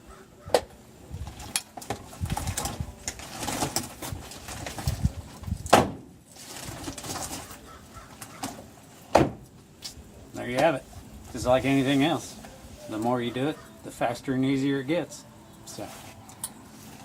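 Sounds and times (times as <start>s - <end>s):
rustling: 1.2s - 9.2s, 15.7s - 17.0s.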